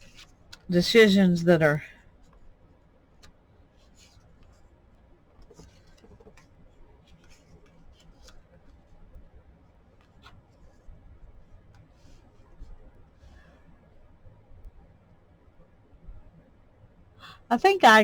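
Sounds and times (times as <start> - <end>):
paper taps and rustles: 5.4 - 6.5.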